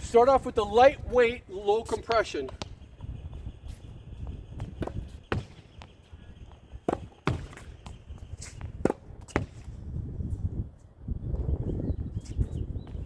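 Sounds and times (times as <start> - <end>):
wind rumble on microphone: 0.0 - 13.0
tennis ball hitting wall: 6.9 - 7.7, 8.7 - 9.7.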